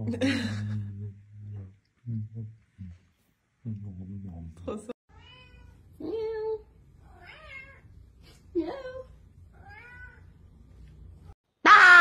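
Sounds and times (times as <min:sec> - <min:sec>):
cat meowing: 0:05.1 - 0:05.8, 0:09.6 - 0:10.3.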